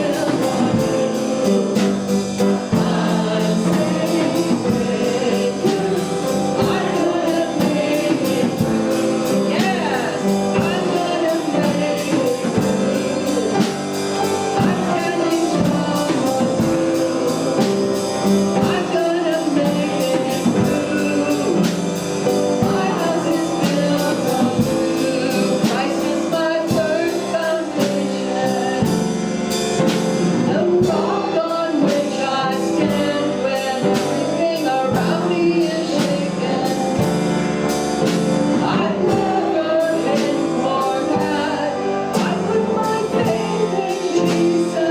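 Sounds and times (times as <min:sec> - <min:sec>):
live band playing: 0:00.0 - 0:44.9
people singing worship song: 0:00.0 - 0:44.9
steady drum beat: 0:00.0 - 0:44.9.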